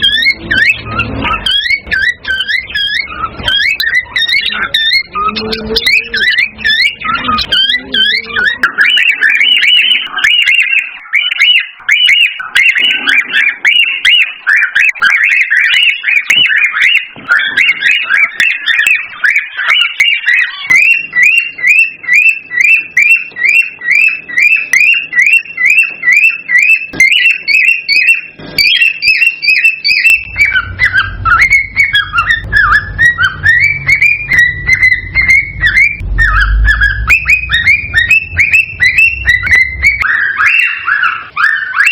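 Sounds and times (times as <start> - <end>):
cockatiels chirping and whistling: 0.0 - 41.9
low rumble: 30.2 - 40.0.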